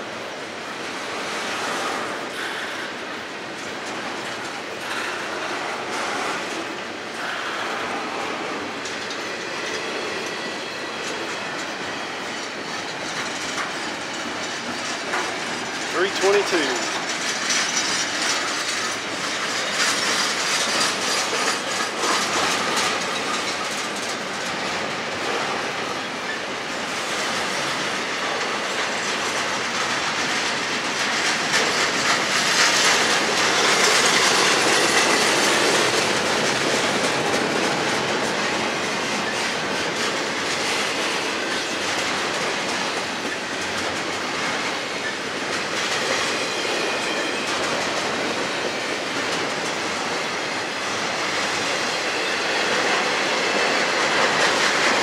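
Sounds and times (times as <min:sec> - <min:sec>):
freight train wheel clatter: 0:00.1 - 0:55.0
freight cars rumbling: 0:07.4 - 0:26.3.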